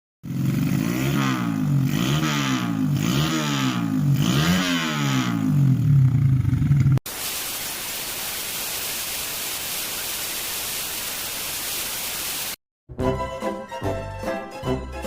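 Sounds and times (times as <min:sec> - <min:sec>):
motorcycle engine revving: 0:00.2 - 0:07.0.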